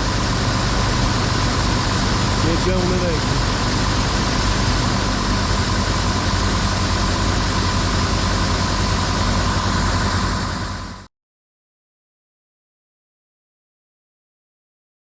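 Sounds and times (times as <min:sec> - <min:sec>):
diesel engine running: 0:00.0 - 0:11.1
faint steady whine: 0:00.0 - 0:11.1.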